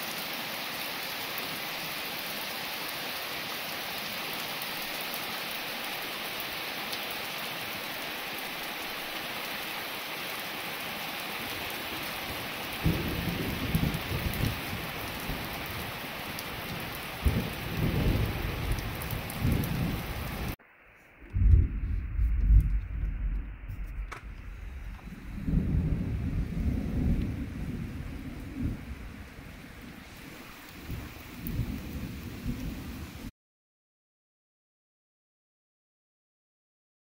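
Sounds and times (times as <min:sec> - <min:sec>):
steady rain falling: 0:00.0 - 0:33.3
thunder rumbling: 0:11.6 - 0:20.6, 0:21.2 - 0:33.3.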